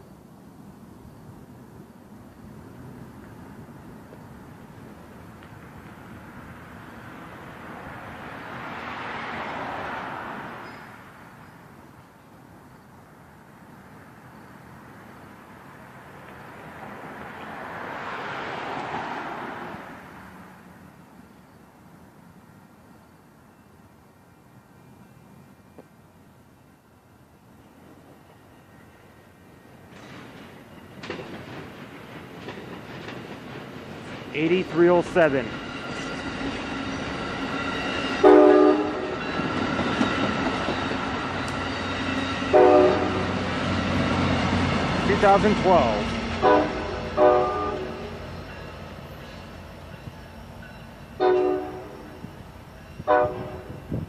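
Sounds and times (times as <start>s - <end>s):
passenger train rolling on rails: 0.0s - 54.0s
vehicle passing by: 6.3s - 11.2s, 15.6s - 20.7s
multi-note train horn: 38.2s - 39.2s, 42.5s - 43.4s, 46.0s - 48.2s, 51.2s - 52.2s, 53.0s - 53.8s.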